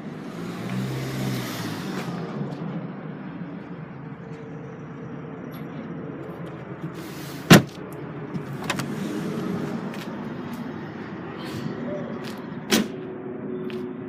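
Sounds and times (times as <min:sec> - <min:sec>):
tailgate shutting thud: 0:07.5 - 0:07.7.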